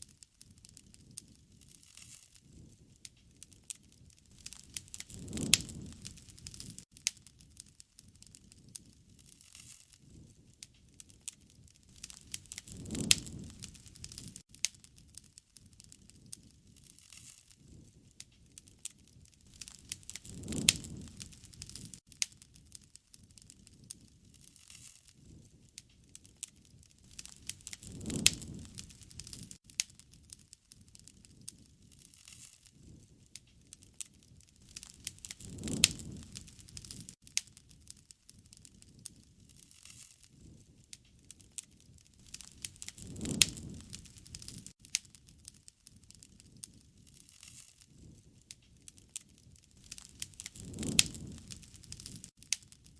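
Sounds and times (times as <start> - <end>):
campfire crackling: 0.0 - 52.9.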